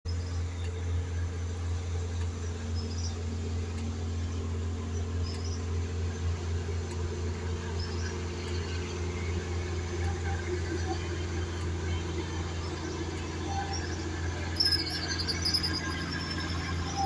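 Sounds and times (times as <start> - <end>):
boat engine droning: 0.1 - 17.0
faint high chirps: 12.4 - 17.0.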